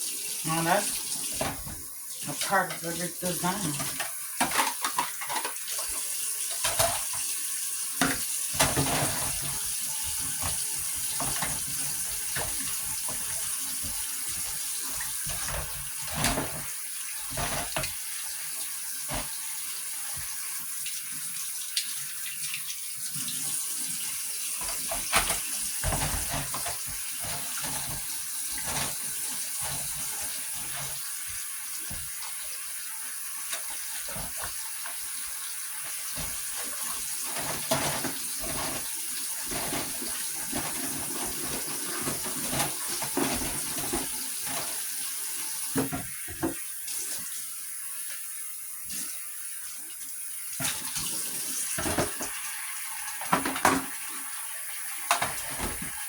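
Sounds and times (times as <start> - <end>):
water running from a tap: 0.0 - 56.0.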